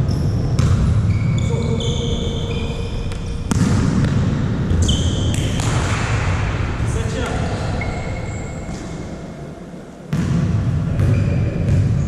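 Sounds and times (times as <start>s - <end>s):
shoes squeaking on court floor: 0.0s - 3.6s, 4.7s - 5.8s, 7.2s - 9.2s, 11.0s - 11.9s
sharp slap: 5.3s - 6.4s.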